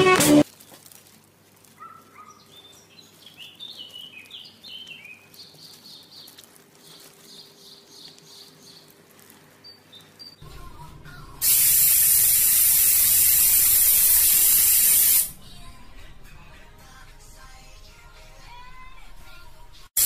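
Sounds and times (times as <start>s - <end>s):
music: 0.0s - 0.4s, 15.3s - 20.0s.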